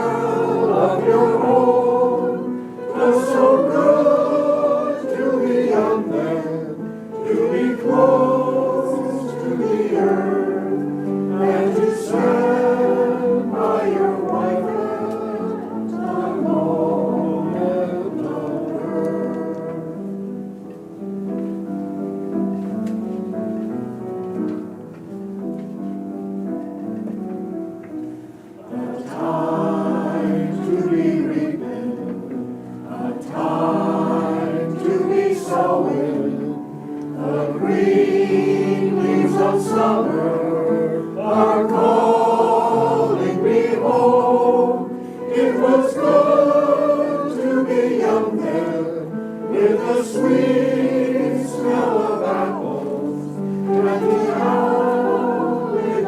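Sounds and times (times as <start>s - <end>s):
choir singing: 0.0s - 20.6s, 28.5s - 56.0s
instrumental accompaniment: 0.0s - 56.0s.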